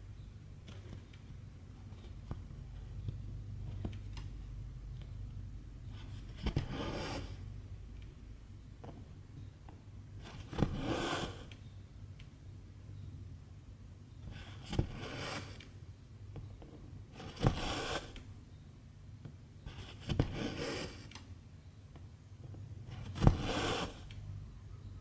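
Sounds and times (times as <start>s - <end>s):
thread rasping through fabric: 23.0s - 24.1s.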